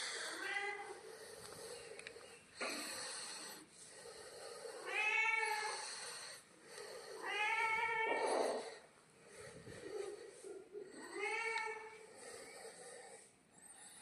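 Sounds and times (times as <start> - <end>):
breathy hiss: 0.0 - 10.4
cat meowing: 4.8 - 5.7, 7.2 - 8.6.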